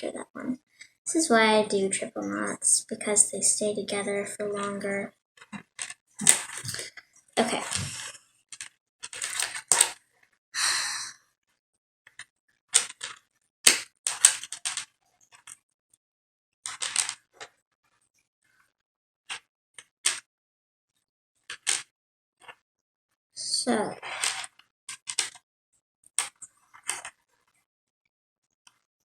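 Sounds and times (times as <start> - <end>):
clicks of handling wire and beads: 12.1 - 15.6, 16.7 - 17.5.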